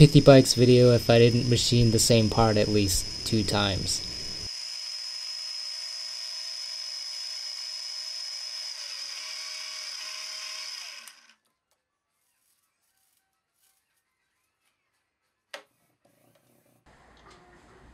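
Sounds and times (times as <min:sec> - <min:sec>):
milling machine spindle whine: 0:00.0 - 0:11.3.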